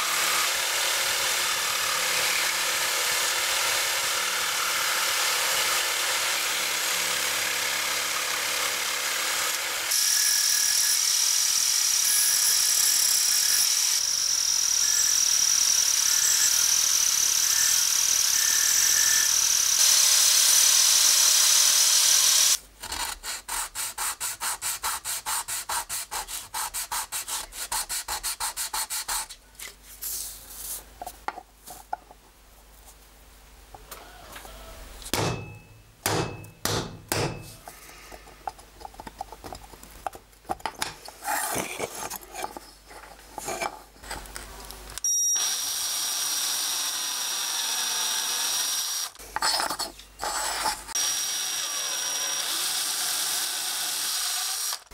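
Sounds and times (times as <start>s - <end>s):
angle grinder cutting steel: 0.0s - 22.6s, 45.4s - 49.6s, 50.2s - 54.9s
jigsaw cutting wood: 0.0s - 22.6s, 45.4s - 49.2s, 50.9s - 54.9s
irregular scraping: 37.5s - 44.6s, 49.2s - 51.0s
file rasping wood: 49.3s - 51.1s.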